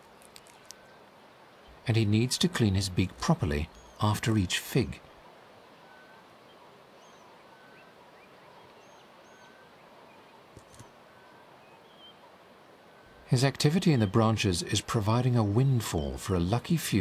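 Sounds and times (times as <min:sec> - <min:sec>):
faint clicks: 0:00.0 - 0:00.9, 0:10.5 - 0:11.0
soft steady hiss: 0:00.0 - 0:17.0.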